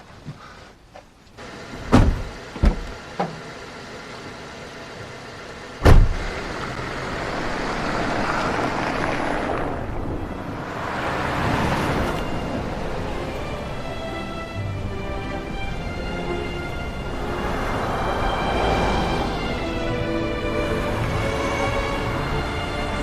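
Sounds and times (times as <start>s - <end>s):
car driving: 0.0s - 23.0s
car door shutting: 1.7s - 3.4s, 5.8s - 6.4s.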